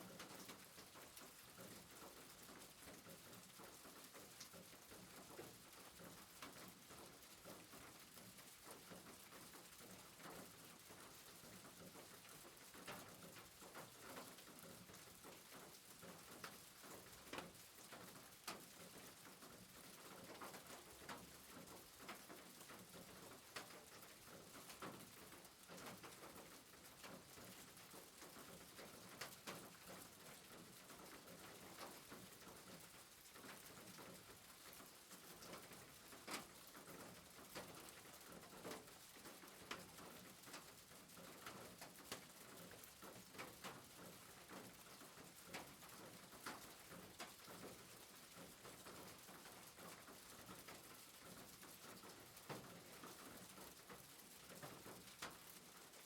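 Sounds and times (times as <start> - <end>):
soft rain: 0.0 - 56.0.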